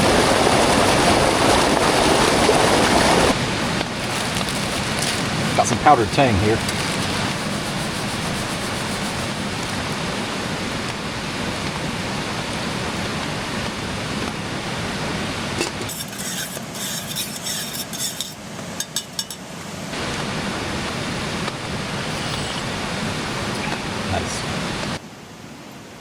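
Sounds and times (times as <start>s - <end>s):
spoon clinking in a cup: 15.6s - 19.5s.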